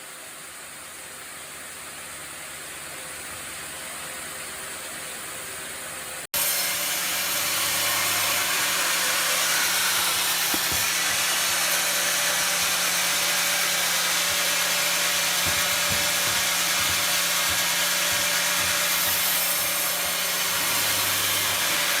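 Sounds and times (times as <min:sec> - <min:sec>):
saw cutting through timber: 0:06.3 - 0:22.0.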